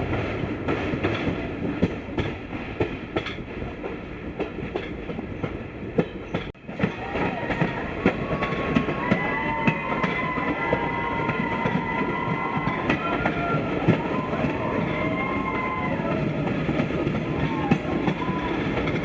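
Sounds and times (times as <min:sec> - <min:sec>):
train wheels clicking over rail joints: 0:00.0 - 0:19.0.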